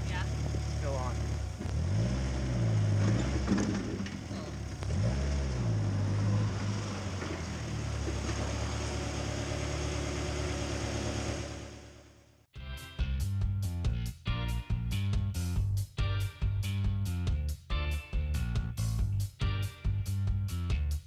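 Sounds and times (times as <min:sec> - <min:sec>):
car engine revving: 0:00.0 - 0:12.3.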